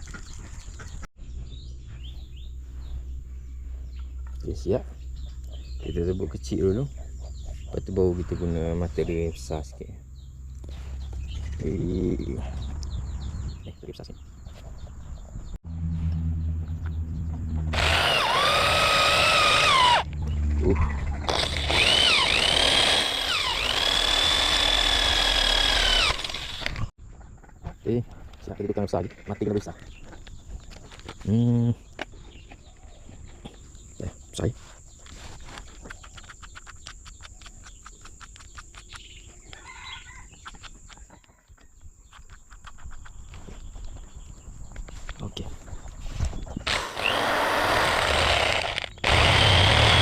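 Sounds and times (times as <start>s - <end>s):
electric drill boring into steel: 17.7s - 20.1s, 21.3s - 26.9s, 46.7s - 50.0s
rapid even ticking: 46.7s - 50.0s.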